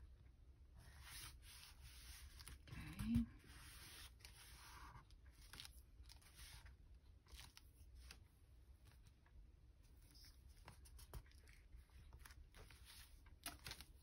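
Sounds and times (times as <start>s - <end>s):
low room hum: 0.0s - 14.0s
paper rustling and tapping: 10.6s - 14.0s.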